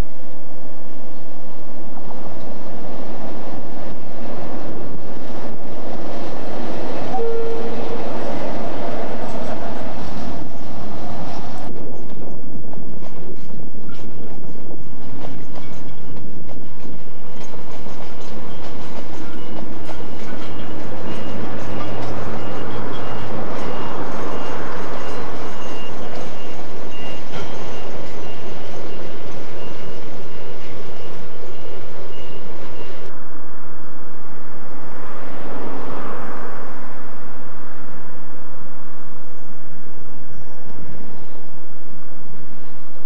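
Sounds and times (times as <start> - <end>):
dull steady rush: 0.0 - 43.0.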